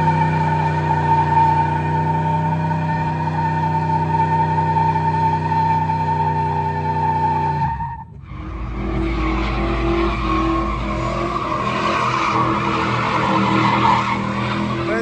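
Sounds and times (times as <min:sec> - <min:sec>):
engine running hard: 0:08.1 - 0:15.0
tyres squealing: 0:08.3 - 0:15.0.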